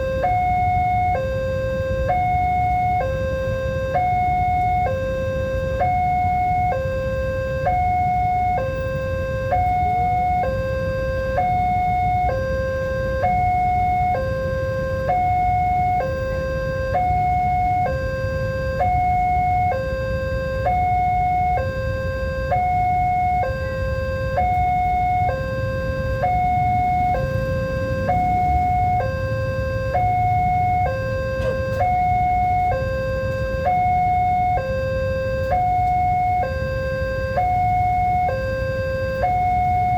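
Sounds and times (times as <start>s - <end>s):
level-crossing two-tone alarm: 0.0s - 39.9s.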